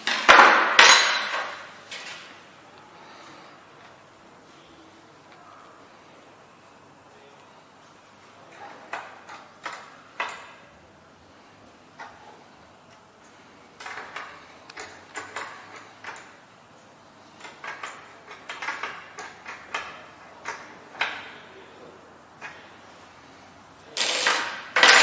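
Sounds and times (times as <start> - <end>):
small hard parts clicking: 12.9 - 16.4, 17.2 - 21.3.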